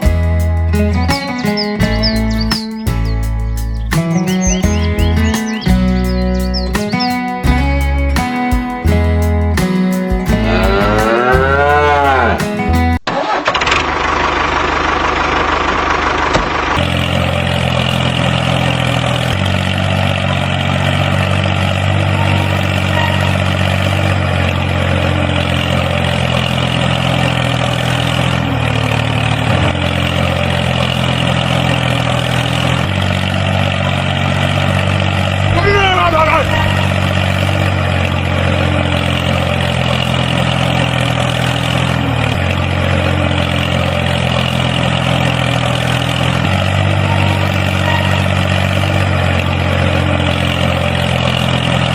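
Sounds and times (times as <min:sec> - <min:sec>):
wavering pitched sound: 0:00.0 - 0:13.0, 0:22.0 - 0:26.0, 0:33.8 - 0:40.8, 0:43.2 - 0:50.9
tractor engine running: 0:00.0 - 0:51.9.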